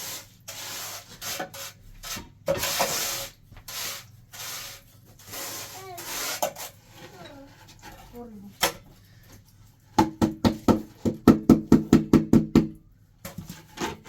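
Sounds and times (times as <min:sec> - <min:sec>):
scraping or rubbing strokes: 0:00.0 - 0:08.2.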